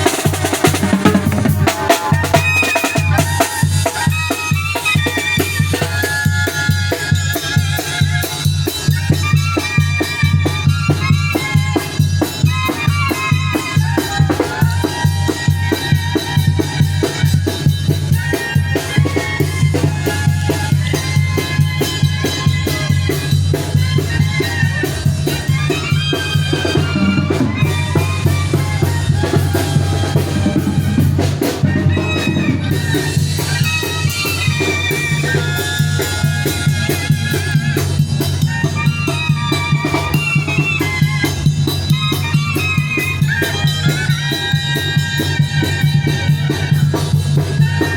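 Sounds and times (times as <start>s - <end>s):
brass and saxophone melody: 0.0s - 47.9s
bass drum beating: 26.8s - 33.4s.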